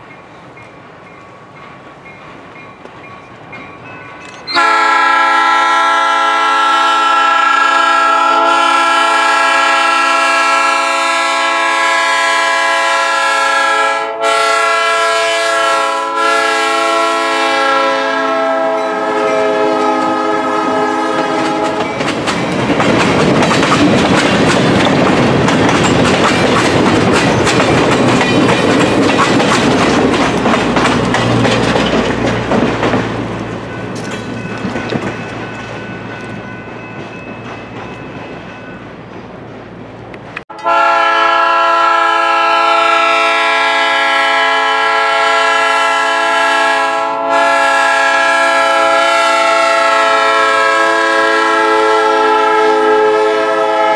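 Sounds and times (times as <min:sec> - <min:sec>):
train wheels clacking on rails: 0:00.0 - 0:05.0, 0:20.8 - 0:40.8
locomotive air horn blast: 0:04.5 - 0:21.9, 0:40.5 - 0:53.9.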